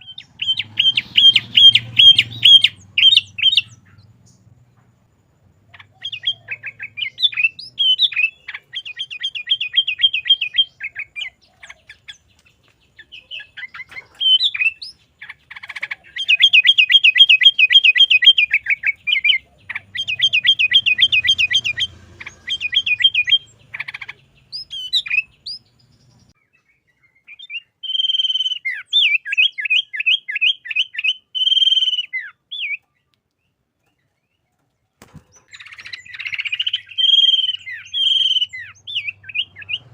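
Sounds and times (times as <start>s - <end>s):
bulbul singing rapid rising notes: 0.0s - 4.8s, 5.6s - 12.3s, 12.9s - 26.4s, 35.0s - 39.9s.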